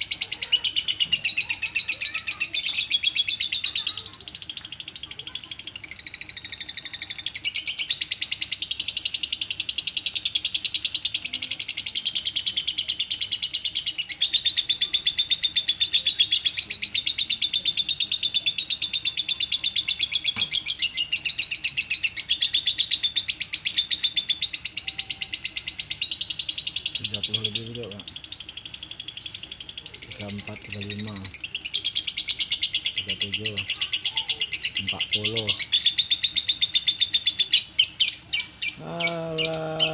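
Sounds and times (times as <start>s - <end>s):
bird chattering trill: 0.0s - 39.9s.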